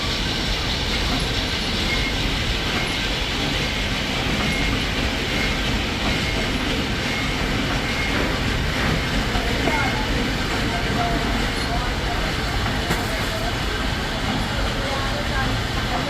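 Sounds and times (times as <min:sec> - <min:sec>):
workshop machinery running: 0:11.2 - 0:16.0.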